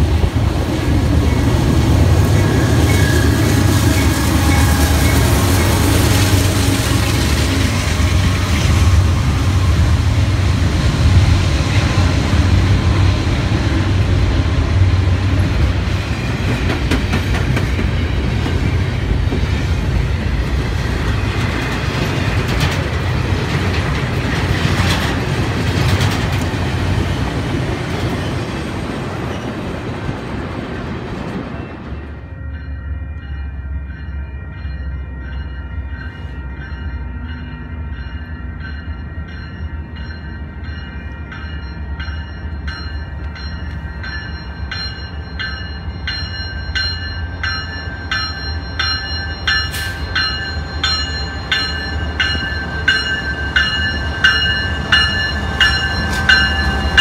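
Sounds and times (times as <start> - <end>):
train wheels clickety-clack: 0.0 - 32.1, 43.3 - 57.0
diesel locomotive engine rumble: 0.0 - 57.0
train cars clanking: 0.0 - 57.0.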